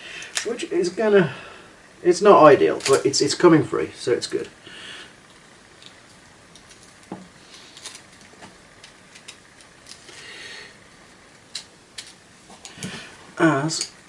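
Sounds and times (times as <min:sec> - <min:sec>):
copper wire clicking and scraping: 0:05.2 - 0:10.3, 0:10.9 - 0:14.0.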